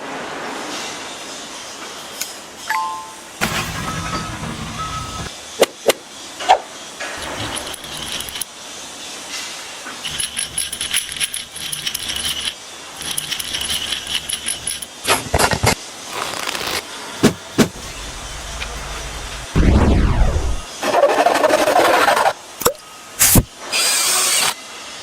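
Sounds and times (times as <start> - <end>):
metallic clinking and rattling: 7.2 - 8.4, 10.0 - 15.0, 17.2 - 19.6.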